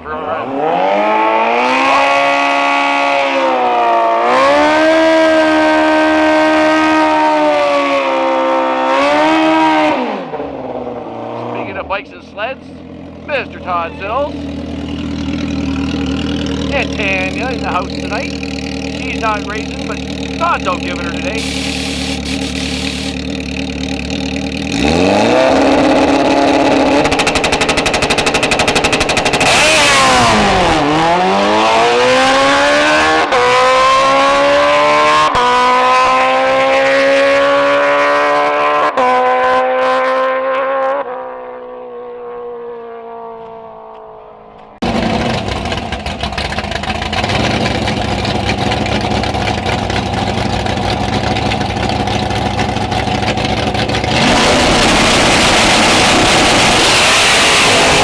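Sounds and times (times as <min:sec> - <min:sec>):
drag racing engine revving: 0:00.0 - 0:44.0, 0:44.7 - 0:58.0
another engine running: 0:10.2 - 0:36.0, 0:44.5 - 0:58.0.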